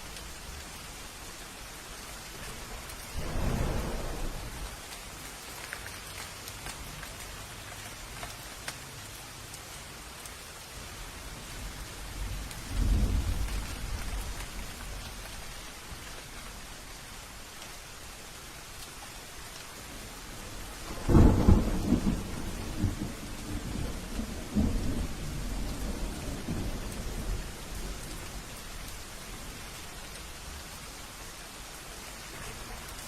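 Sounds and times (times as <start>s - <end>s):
steady rain hiss: 0.0s - 33.0s
thunder rumbling: 2.4s - 4.9s, 11.4s - 16.4s, 20.8s - 28.8s.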